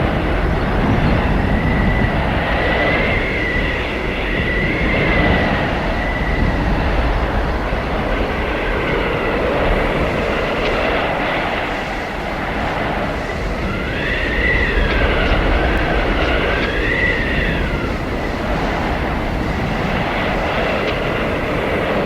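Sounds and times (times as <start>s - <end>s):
blizzard wind howling: 0.0s - 22.0s.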